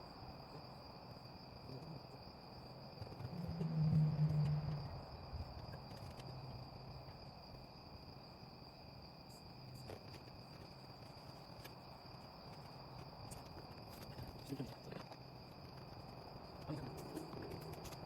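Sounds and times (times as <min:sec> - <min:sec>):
crickets trilling: 0:00.0 - 0:18.0
low hum: 0:03.0 - 0:07.0.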